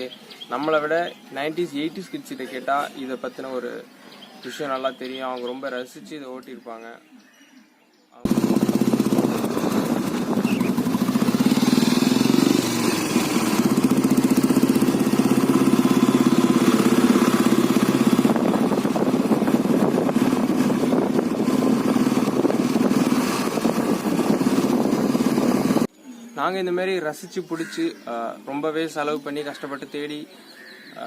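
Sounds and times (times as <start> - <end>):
motorcycle engine running: 8.3 - 25.9.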